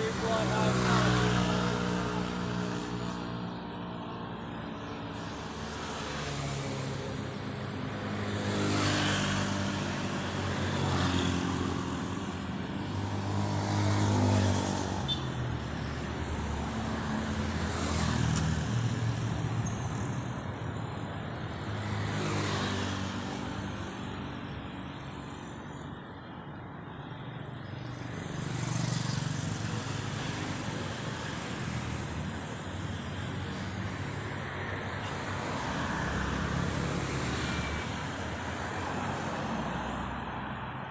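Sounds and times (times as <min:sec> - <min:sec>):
cars and motorbikes passing: 0:00.0 - 0:40.9.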